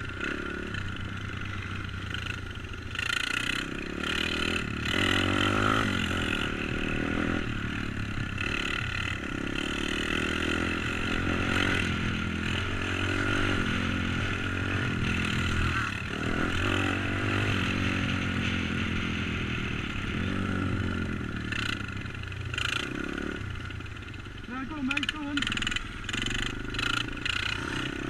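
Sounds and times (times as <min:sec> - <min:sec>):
motorbike engine revving: 0:00.0 - 0:28.0.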